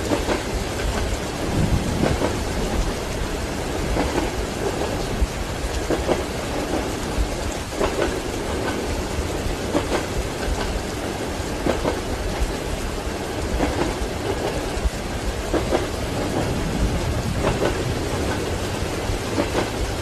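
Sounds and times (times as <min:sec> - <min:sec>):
train wheels clacking: 0:00.0 - 0:03.1, 0:03.7 - 0:05.1, 0:05.7 - 0:20.0
steady rain: 0:00.0 - 0:20.0
train rumble: 0:00.0 - 0:20.0.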